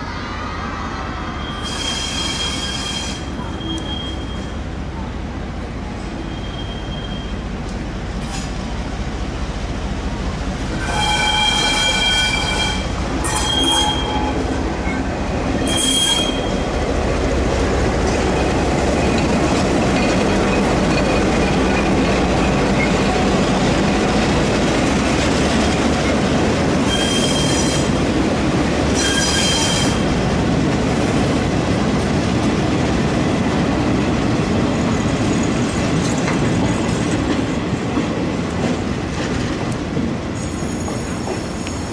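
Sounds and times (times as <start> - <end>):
train wheels squealing on rails: 0.0 - 5.1, 6.0 - 7.6, 10.8 - 16.8, 18.1 - 23.2, 26.8 - 28.1, 28.9 - 30.2, 40.3 - 41.9
train rumble: 0.0 - 41.9.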